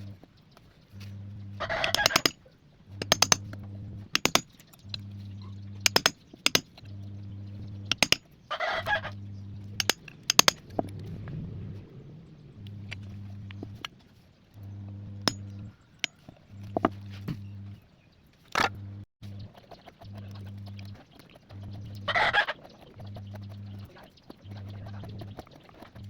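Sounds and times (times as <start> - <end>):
low hum: 0.0 - 18.0, 18.6 - 22.3, 22.9 - 26.0
chicken calls: 1.6 - 2.2, 8.5 - 9.2, 20.9 - 25.9
sharp taps or clicks: 1.9 - 2.4, 3.0 - 3.6, 4.2 - 5.0, 5.9 - 6.7, 7.9 - 8.2, 9.8 - 11.0.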